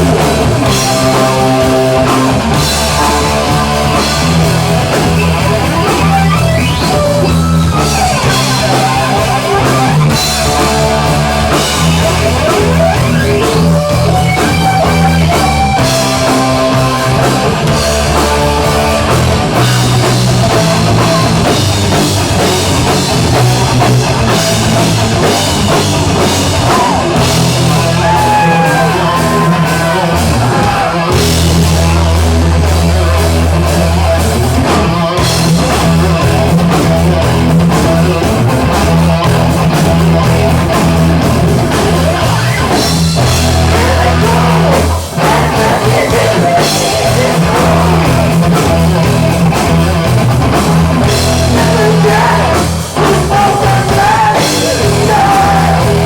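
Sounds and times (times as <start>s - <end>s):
heavy rock band playing: 0.0s - 56.0s.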